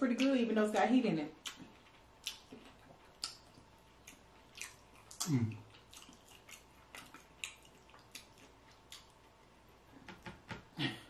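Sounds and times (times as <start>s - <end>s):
chewing fried chicken: 1.4s - 9.8s.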